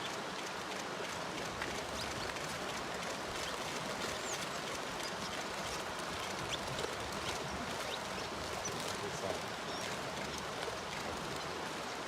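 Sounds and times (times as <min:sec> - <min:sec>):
steady outdoor hiss: 0:00.0 - 0:12.0
small birds chirping: 0:03.4 - 0:05.4, 0:07.4 - 0:10.4.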